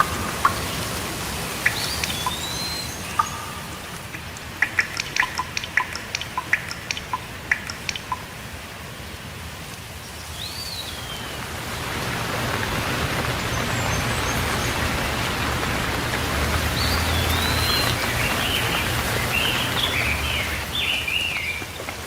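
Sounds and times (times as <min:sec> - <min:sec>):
plinking water drips: 0:00.0 - 0:08.6, 0:13.6 - 0:22.0
rain hiss: 0:00.0 - 0:22.0.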